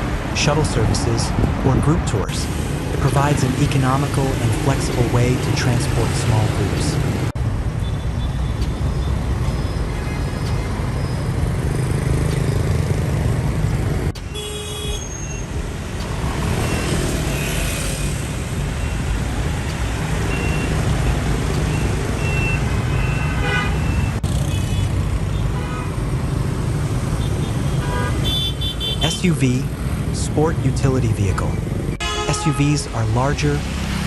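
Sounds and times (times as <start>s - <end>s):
vehicle engines rumbling: 0.0s - 34.0s
car horn toots: 14.2s - 15.4s, 23.1s - 24.1s, 27.7s - 29.2s, 32.0s - 32.9s.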